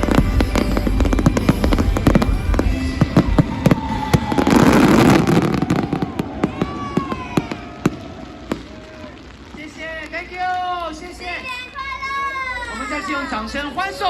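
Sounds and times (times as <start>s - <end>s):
music: 0.0s - 5.7s
fireworks bangs: 0.0s - 11.7s
fireworks crackling: 0.0s - 14.0s.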